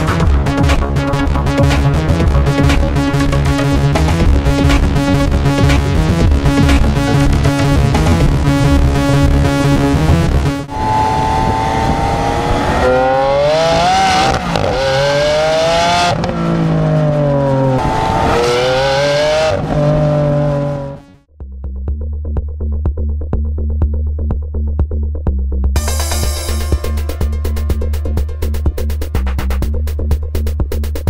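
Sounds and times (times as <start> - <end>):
music: 0.0 - 10.7, 21.0 - 31.0
electronic music with steady beat: 0.0 - 11.0, 22.0 - 31.0
car engine accelerating: 0.0 - 21.3.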